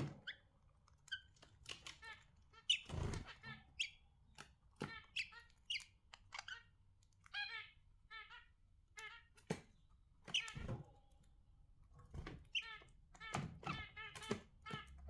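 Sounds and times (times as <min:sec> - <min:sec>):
budgerigars chirping: 0:01.8 - 0:04.0, 0:04.9 - 0:06.7.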